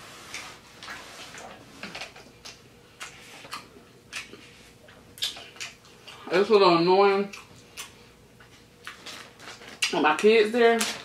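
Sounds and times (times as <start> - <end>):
chewing and wet lip smacks: 2.4 - 6.3, 7.3 - 8.0.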